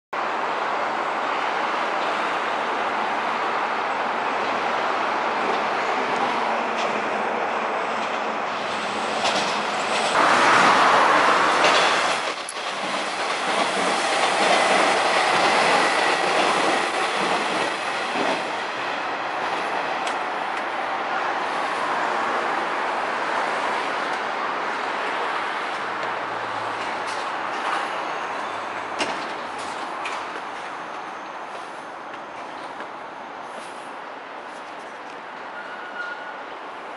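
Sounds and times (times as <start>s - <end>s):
train wheels clattering over rail joints: 8.0s - 18.5s.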